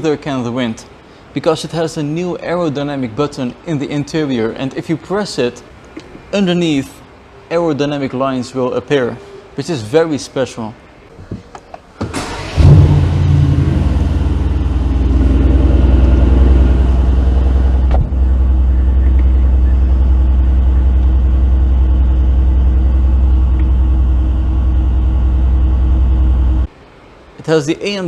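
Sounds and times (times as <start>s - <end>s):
car engine starting and idling: 12.0s - 26.7s.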